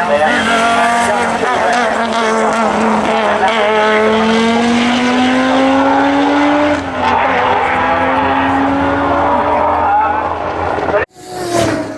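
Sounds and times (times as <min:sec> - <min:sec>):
rally car engine revving: 0:00.0 - 0:11.9.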